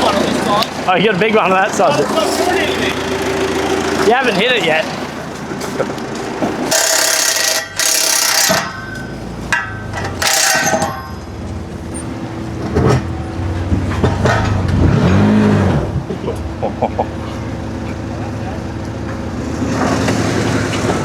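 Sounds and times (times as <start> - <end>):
engine running: 0.0 - 21.0
rattling impact wrench: 6.2 - 11.3.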